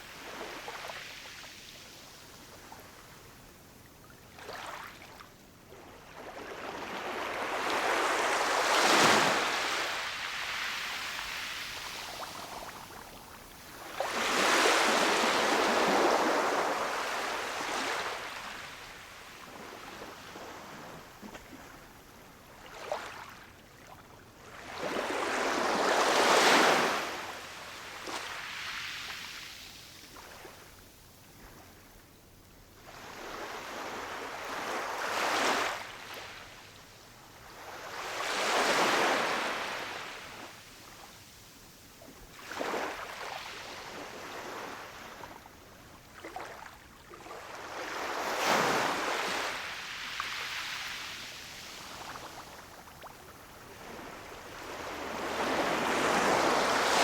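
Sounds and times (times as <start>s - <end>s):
ocean waves breaking on shore: 13.8s - 19.7s, 53.4s - 57.0s.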